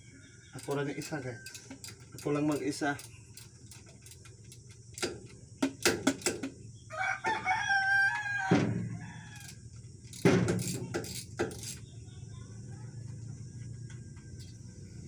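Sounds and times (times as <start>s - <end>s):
rooster crowing: 0.7s - 2.0s, 6.9s - 9.8s
sharp knocks: 10.2s - 11.6s.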